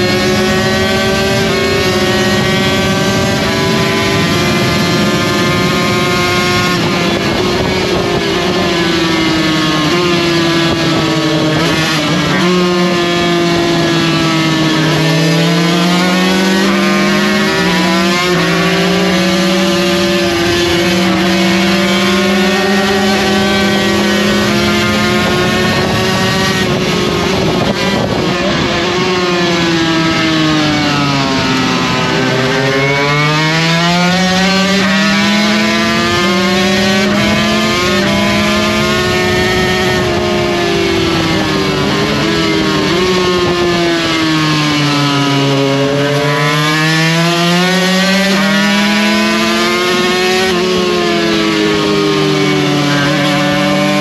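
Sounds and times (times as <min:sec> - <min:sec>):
wind rush: 0:00.0 - 0:53.9
race motorcycle engine revving: 0:00.0 - 0:54.0.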